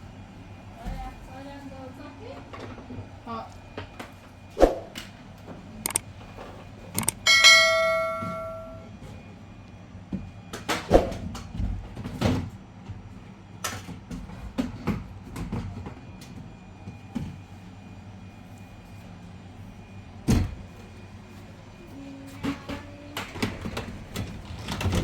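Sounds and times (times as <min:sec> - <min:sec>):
metal object ringing: 0:07.0 - 0:08.9.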